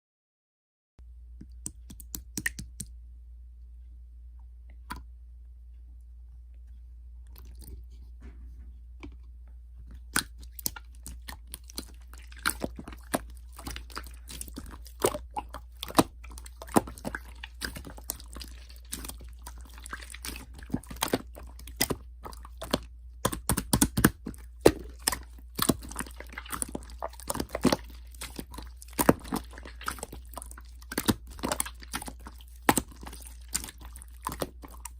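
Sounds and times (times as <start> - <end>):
steady low hum: 1.0 - 34.9
crunching and crackling clicks: 9.0 - 34.9.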